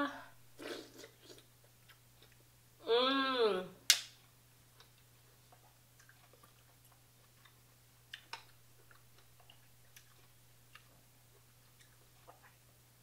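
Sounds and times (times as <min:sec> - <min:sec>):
chewing and wet mouth clicks: 0:01.0 - 0:02.4, 0:04.2 - 0:12.7.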